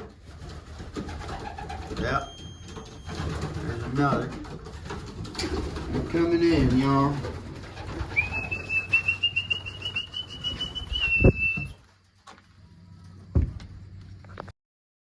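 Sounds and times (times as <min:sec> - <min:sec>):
person whistling long note: 0:08.2 - 0:11.8.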